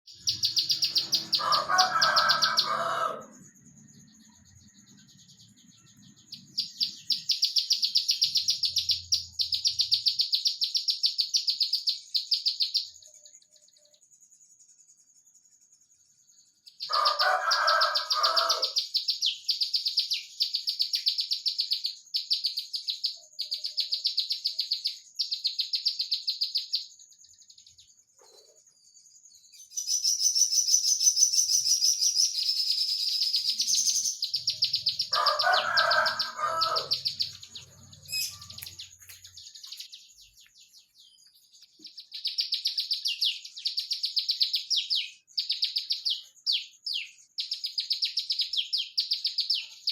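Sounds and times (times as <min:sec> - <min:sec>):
lower chattering call: 0:00.1 - 0:10.6, 0:29.9 - 0:40.0
bird singing trilled bursts: 0:35.8 - 0:49.8.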